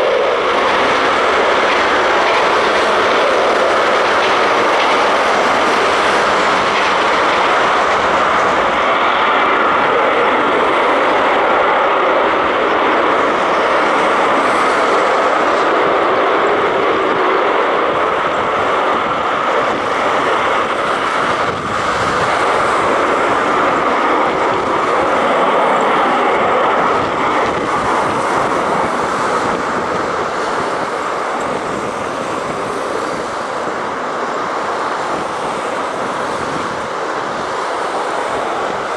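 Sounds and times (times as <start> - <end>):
military aircraft engines running: 0.0 - 38.9.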